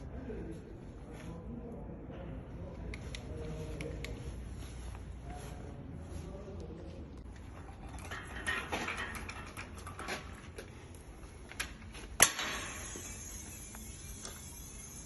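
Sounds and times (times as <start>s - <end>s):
hand tools and parts clinking: 7.2s - 15.0s.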